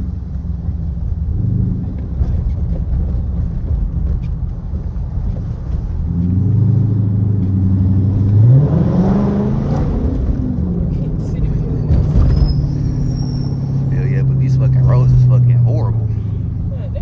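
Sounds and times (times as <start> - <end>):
car exhaust droning and revving: 5.9 - 17.0.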